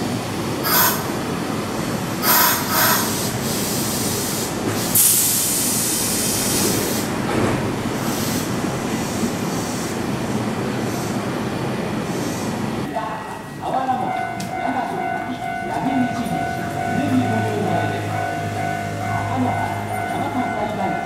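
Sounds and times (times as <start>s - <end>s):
train wheel rumble: 0.0s - 21.0s
loud hiss: 3.0s - 7.2s.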